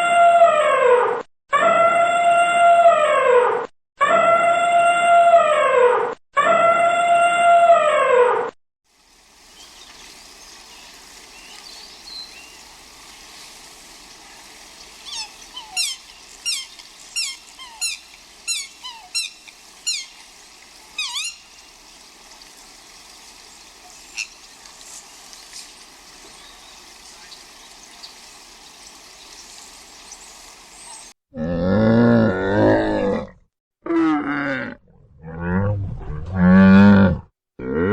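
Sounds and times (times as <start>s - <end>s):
steady outdoor hiss: 8.9s - 31.1s
bird calling: 14.8s - 22.5s, 23.4s - 31.1s.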